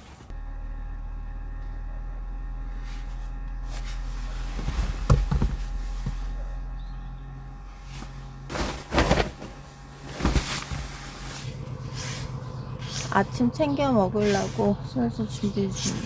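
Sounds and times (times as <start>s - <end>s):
steady low hum: 0.3s - 16.0s
rustling and scraping: 2.7s - 6.7s, 7.6s - 13.3s
knocks and clatter: 4.4s - 6.9s.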